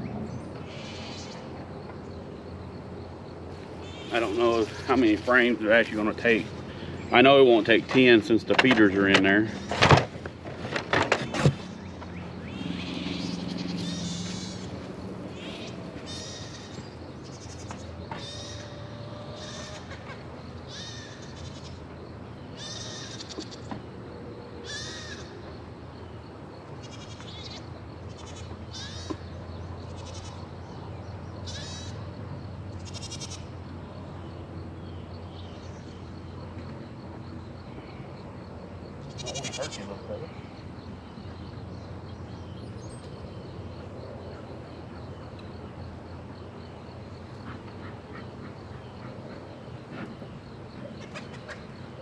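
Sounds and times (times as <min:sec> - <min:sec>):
goats bleating: 0:39.1 - 0:40.0.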